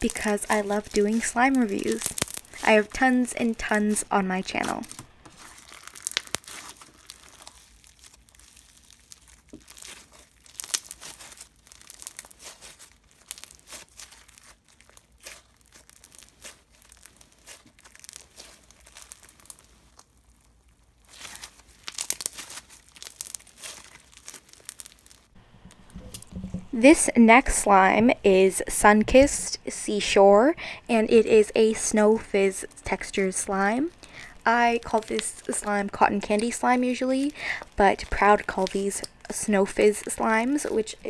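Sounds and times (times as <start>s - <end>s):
slime crackling and popping: 0.0s - 26.6s, 31.7s - 41.0s.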